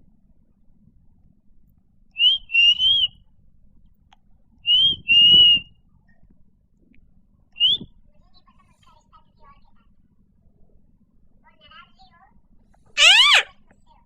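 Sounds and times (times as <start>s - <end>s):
person whistling: 2.2s - 3.1s, 4.7s - 5.7s, 7.6s - 7.8s.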